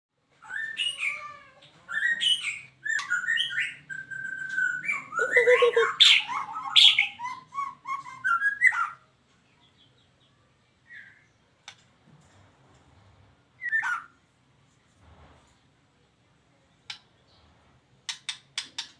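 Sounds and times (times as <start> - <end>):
bird singing whistled phrases: 1.9 - 9.0.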